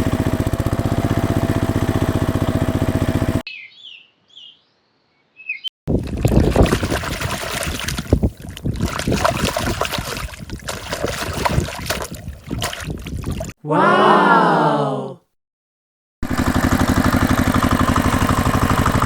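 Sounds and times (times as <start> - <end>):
water splashing and spraying: 5.9 - 13.5.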